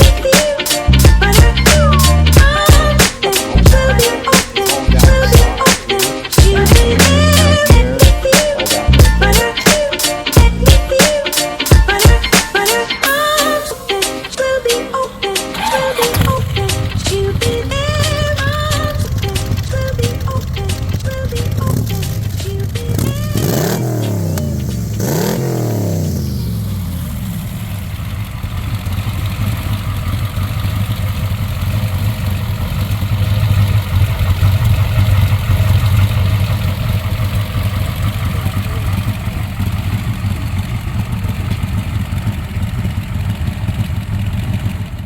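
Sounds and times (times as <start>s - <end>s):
car engine revving and idling: 0.9s - 9.6s, 15.5s - 45.0s.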